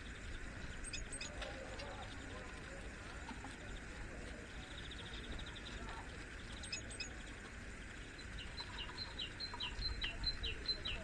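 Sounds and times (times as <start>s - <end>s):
low background noise: 0.0s - 11.0s
small birds calling: 0.0s - 11.0s.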